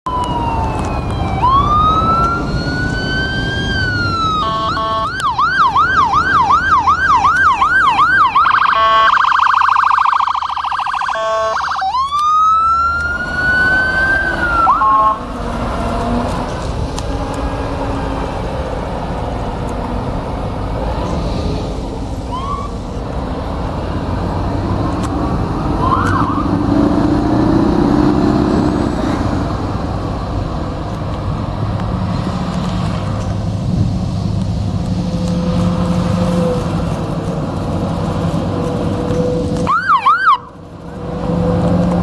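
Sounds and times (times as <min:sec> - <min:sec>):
heavy truck engine and road noise: 0:00.0 - 0:42.0
rising siren yelps: 0:00.1 - 0:15.3, 0:22.3 - 0:22.8, 0:25.7 - 0:26.7, 0:39.7 - 0:40.6.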